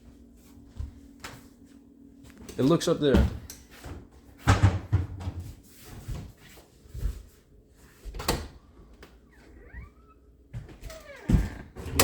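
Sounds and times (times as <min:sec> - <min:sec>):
cupboard doors knocking and clunking: 0:04.4 - 0:05.4.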